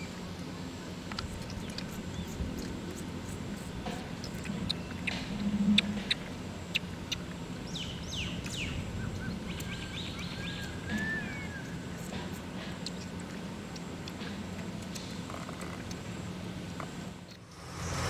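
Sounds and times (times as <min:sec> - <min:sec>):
low background hum: 0:00.0 - 0:18.0
birds chirping: 0:04.6 - 0:13.1.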